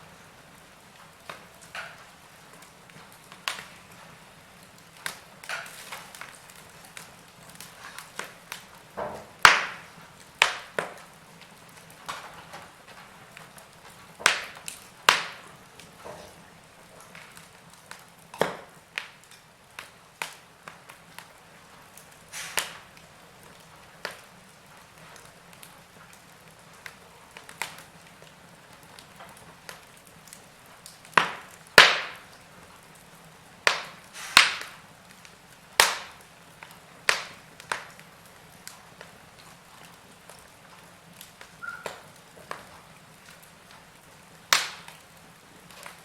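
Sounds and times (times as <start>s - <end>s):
burning logs popping: 0.0s - 46.0s
faint fire hiss: 0.0s - 46.0s.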